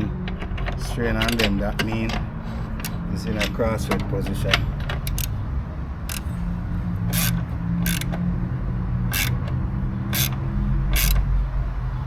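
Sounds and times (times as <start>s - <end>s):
socket ratchet clicking: 2.7s - 3.6s, 4.3s - 8.3s, 9.1s - 11.3s.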